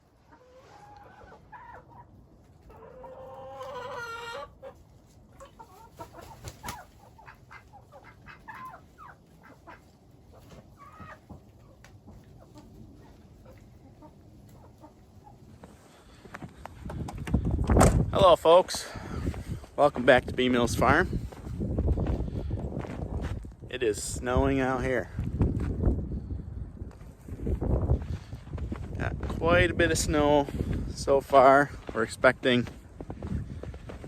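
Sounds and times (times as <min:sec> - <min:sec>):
chickens clucking: 0:00.0 - 0:17.8.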